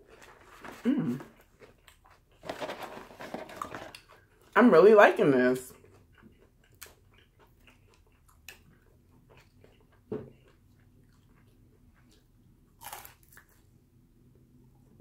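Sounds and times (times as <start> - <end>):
faint chewing: 0.0 - 2.8, 5.7 - 13.8
rustling: 2.4 - 4.0.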